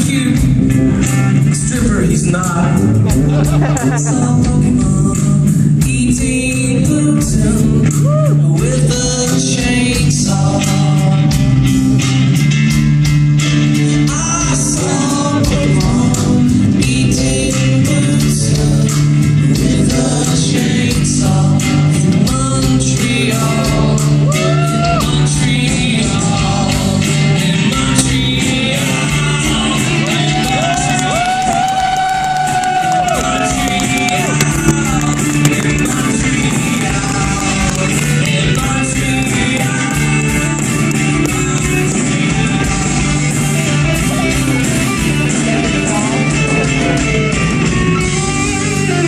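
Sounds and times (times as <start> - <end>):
person singing: 0.0 - 11.8, 13.7 - 49.0
rock band playing: 0.0 - 49.0
drum beat: 0.3 - 10.3, 27.8 - 49.0.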